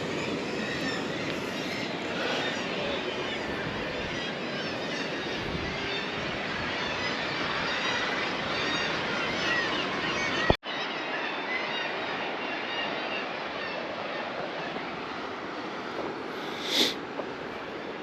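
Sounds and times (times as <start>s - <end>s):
seabird colony calling: 0.0s - 13.8s.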